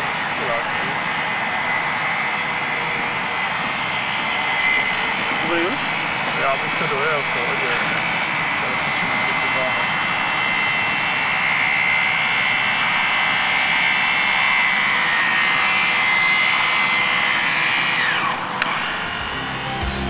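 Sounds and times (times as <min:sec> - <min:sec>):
loud rushing noise: 0:18.3 - 0:20.0.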